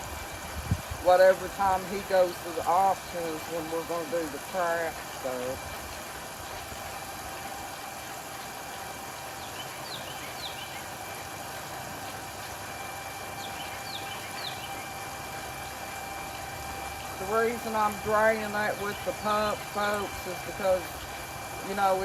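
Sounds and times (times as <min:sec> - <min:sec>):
pump humming with faint whine: 0:00.0 - 0:22.0.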